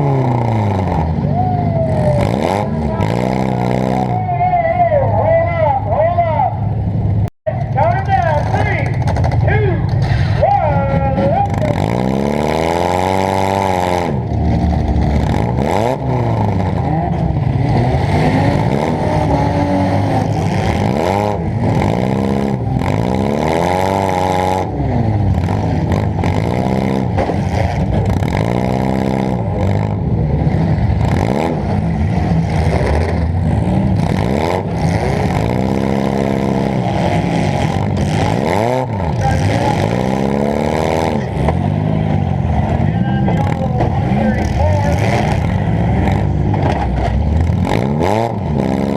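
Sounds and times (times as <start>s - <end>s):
car engine revving hard: 2.2s - 4.2s, 11.1s - 48.9s
clatter: 7.5s - 10.4s, 25.3s - 30.0s, 43.3s - 48.9s.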